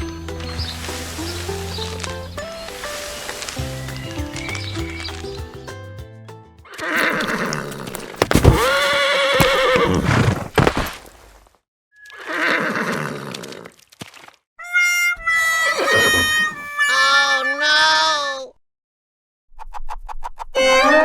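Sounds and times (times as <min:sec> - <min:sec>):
music: 0:00.0 - 0:06.8, 0:20.6 - 0:21.0
horse whinnying: 0:06.8 - 0:10.8, 0:12.0 - 0:13.6, 0:14.6 - 0:18.4.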